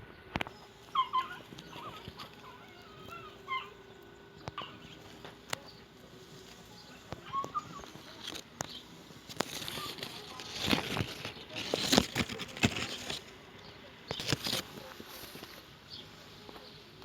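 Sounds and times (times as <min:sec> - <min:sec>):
puppy whimpering: 0:00.9 - 0:03.8, 0:07.2 - 0:08.0.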